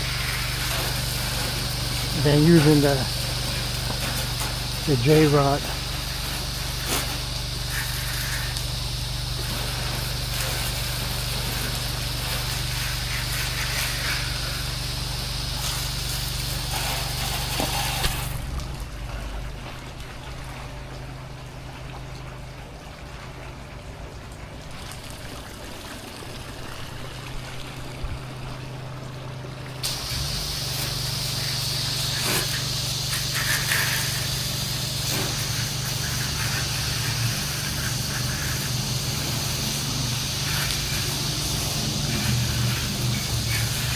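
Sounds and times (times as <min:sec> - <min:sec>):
water spray hissing: 0:00.0 - 0:18.6, 0:29.8 - 0:43.9
pressure washer engine running: 0:00.0 - 0:21.8, 0:23.1 - 0:43.9.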